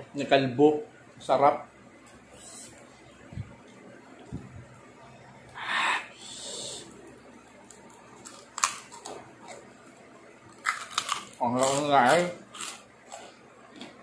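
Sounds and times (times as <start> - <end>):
breathy hissing breaths: 5.5 - 7.0
crunching pork rind chewing: 7.5 - 14.0.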